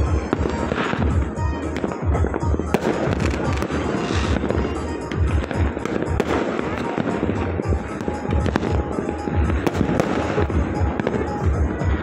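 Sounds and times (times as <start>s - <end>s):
fireworks bangs and crackles: 0.0s - 12.0s
loud music with pounding bass: 0.0s - 12.0s.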